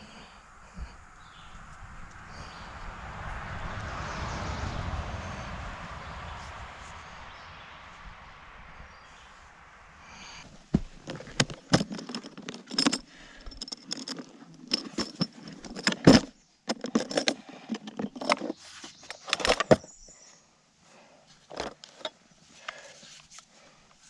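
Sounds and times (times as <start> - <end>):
small metal objects clinking: 11.1 - 18.6.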